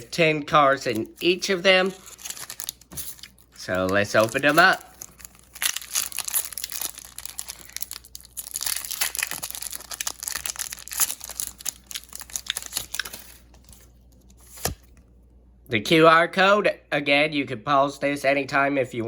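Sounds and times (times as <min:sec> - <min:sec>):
foil wrapper crinkling and tearing: 0:00.8 - 0:15.0.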